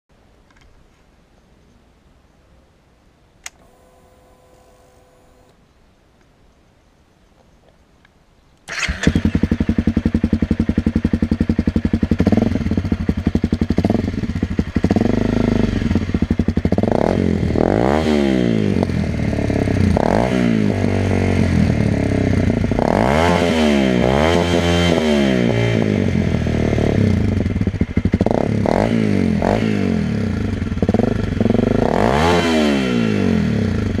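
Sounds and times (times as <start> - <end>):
motorcycle engine idling: 9.1 - 17.6, 26.1 - 31.8.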